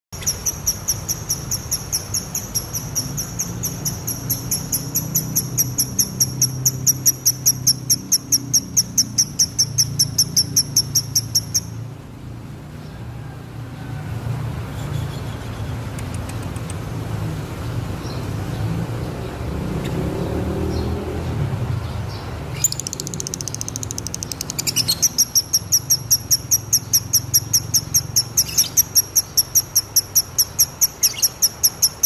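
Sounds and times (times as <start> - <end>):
bird chirping: 0.1 - 11.9, 14.7 - 16.8, 20.6 - 32.0.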